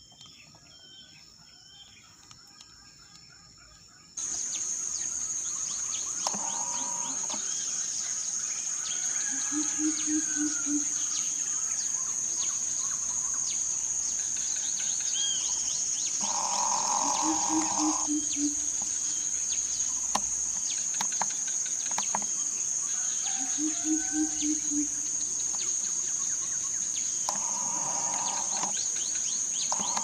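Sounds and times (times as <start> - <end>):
small birds chirping: 1.8 - 8.8, 11.0 - 22.7, 24.8 - 30.0
high-pitched insect drone: 4.2 - 30.0.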